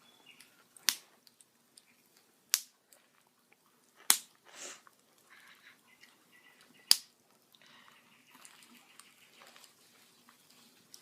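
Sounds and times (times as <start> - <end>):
small fire crackles: 0.0 - 11.0
burning wood popping: 0.1 - 11.0
fire hissing: 4.1 - 4.9.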